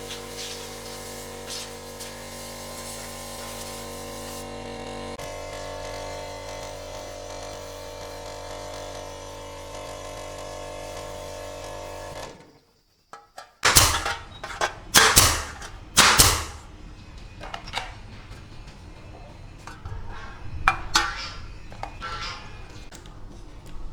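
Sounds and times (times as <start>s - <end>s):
air compressor humming: 0.0s - 12.4s, 13.6s - 23.9s
loud short bursts: 13.6s - 16.7s.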